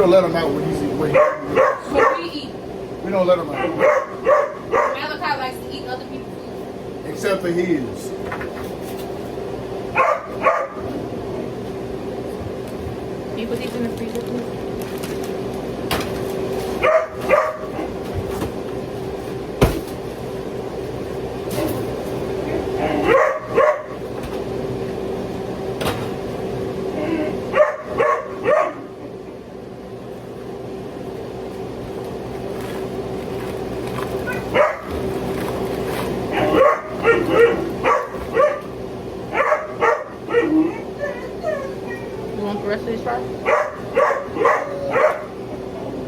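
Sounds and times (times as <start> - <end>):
steady low hum: 0.0 - 46.0
dog barking: 1.1 - 2.3, 3.5 - 5.1, 9.9 - 10.9, 16.8 - 18.0, 23.0 - 24.0, 27.5 - 29.0, 34.3 - 35.0, 36.3 - 38.7, 39.3 - 40.9, 43.4 - 45.4.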